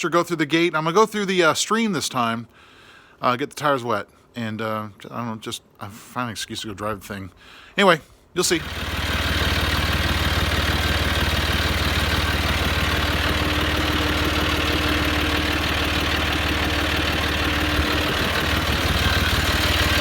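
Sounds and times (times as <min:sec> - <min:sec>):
tractor diesel engine running: 0:08.5 - 0:20.0.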